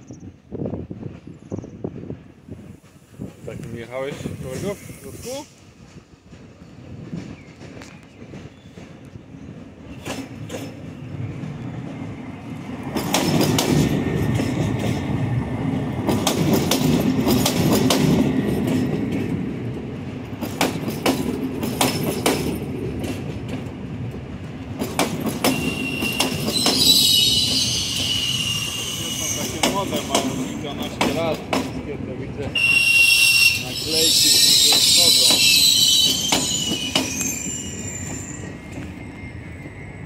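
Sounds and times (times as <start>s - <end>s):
train rumbling past: 0.0s - 40.0s
wheels clicking over rail joints: 16.0s - 26.8s
high wheel squeal: 25.5s - 30.6s, 32.6s - 40.0s.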